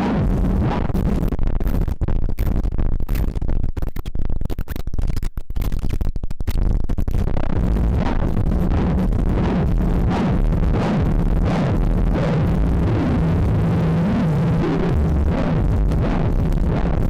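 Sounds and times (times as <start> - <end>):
harsh synthesizer drone: 0.0 - 1.8, 7.2 - 17.0.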